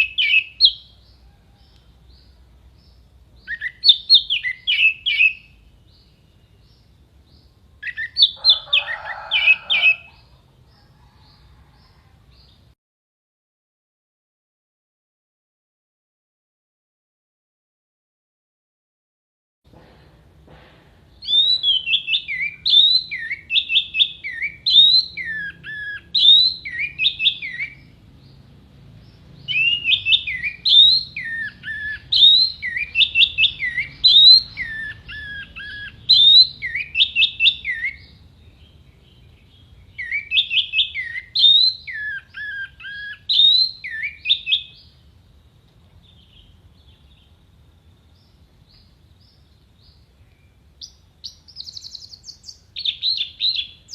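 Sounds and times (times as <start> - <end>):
thrush singing whistled notes: 0.0 - 10.3, 21.1 - 28.4, 29.1 - 47.4, 48.1 - 53.9.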